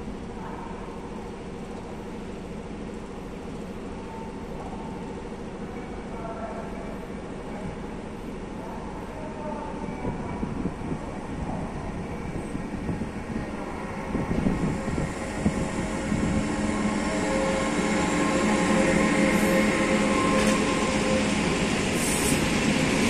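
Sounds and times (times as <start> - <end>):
electric locomotive humming: 6.7 - 23.0
wheels rumbling on rail: 9.8 - 23.0.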